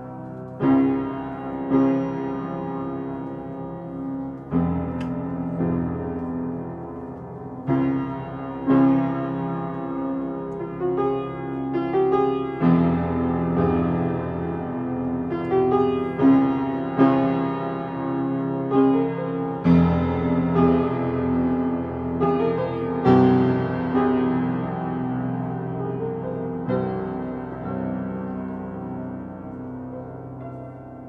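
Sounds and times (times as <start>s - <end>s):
piano chords ringing: 0.0s - 31.0s.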